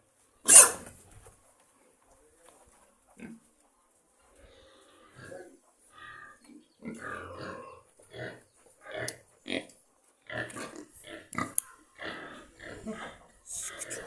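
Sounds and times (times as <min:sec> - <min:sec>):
pigs grunting and squealing: 0:00.4 - 0:01.0, 0:04.4 - 0:14.0.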